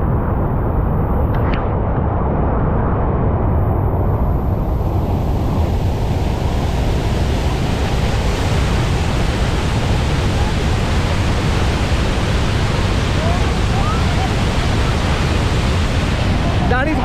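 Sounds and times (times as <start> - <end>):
waterfall rushing: 4.6 - 17.0.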